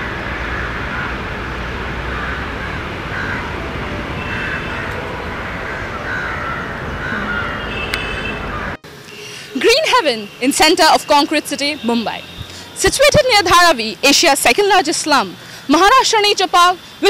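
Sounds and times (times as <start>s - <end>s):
birds calling: 0.0s - 13.6s
outdoor background rumble and hiss: 0.0s - 17.0s.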